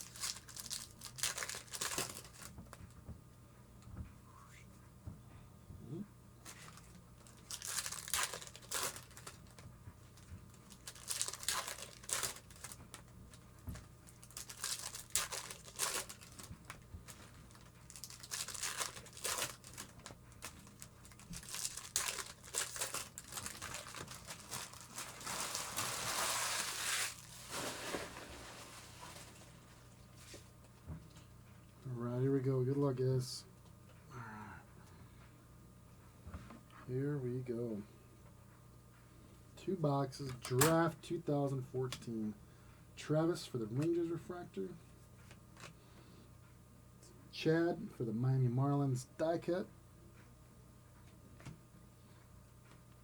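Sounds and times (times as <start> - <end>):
plastic foil wrappers tearing and crinkling: 0.0 - 2.5, 6.4 - 9.6, 10.2 - 29.6.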